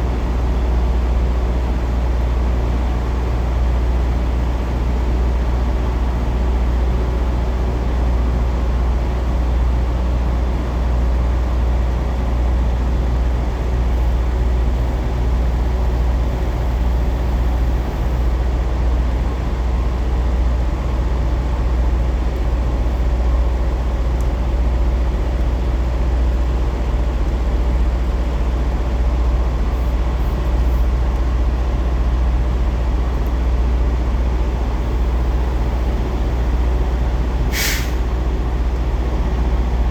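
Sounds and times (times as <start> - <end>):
truck diesel engine running: 11.0 - 39.9.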